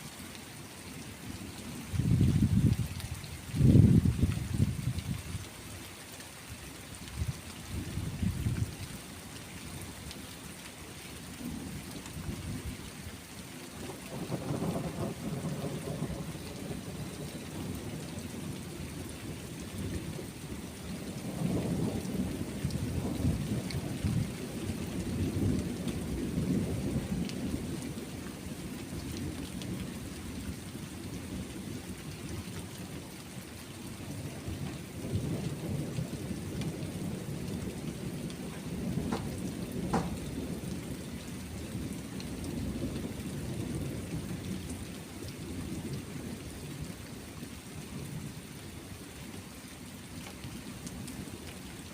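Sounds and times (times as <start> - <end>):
steady rain: 0.0 - 51.9
rolling thunder: 14.1 - 18.8, 21.0 - 27.8, 34.5 - 41.0.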